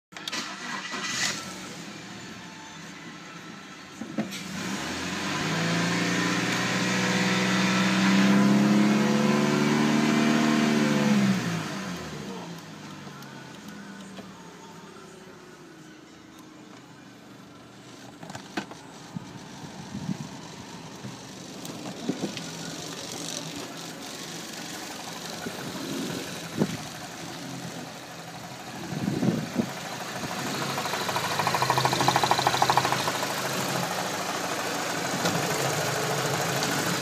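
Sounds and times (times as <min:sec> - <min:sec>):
car engine idling: 0:11.2 - 0:37.0.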